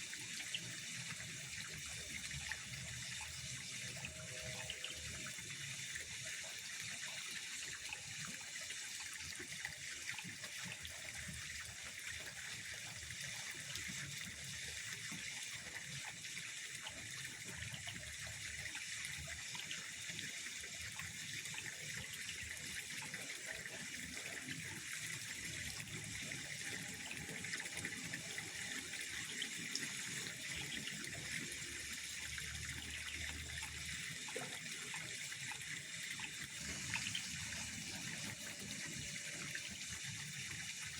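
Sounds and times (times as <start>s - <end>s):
pond water: 0.0s - 40.9s.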